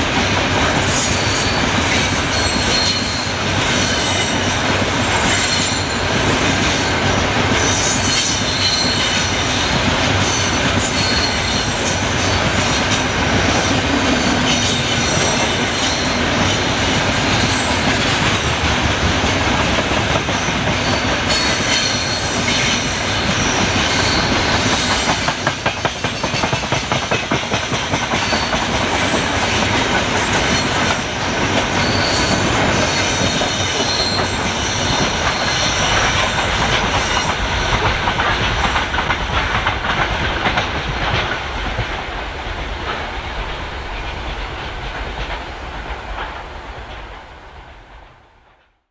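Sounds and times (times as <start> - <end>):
wheels clacking over rail joints: 0.0 - 47.2
freight train wheels rumbling: 0.0 - 48.9
high wheel squeals: 1.0 - 4.6, 23.4 - 25.5, 31.7 - 36.0.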